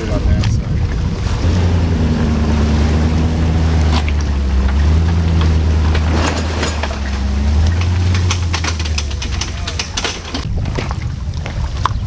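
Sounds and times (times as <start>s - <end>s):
jet ski engine droning: 0.0s - 10.4s.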